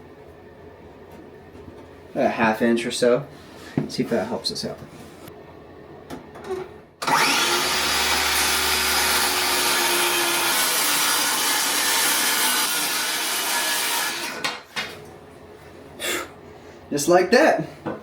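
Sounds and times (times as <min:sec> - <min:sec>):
power tool cutting wood: 0:07.0 - 0:14.6.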